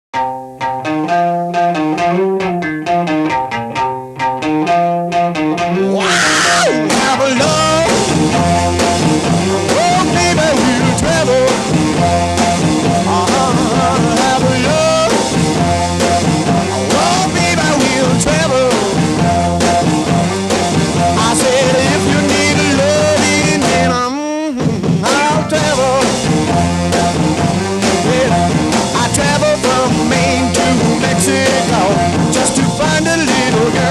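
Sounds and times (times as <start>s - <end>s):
rock band with drums and guitar: 0.1s - 33.9s
plucked strings: 0.2s - 5.9s.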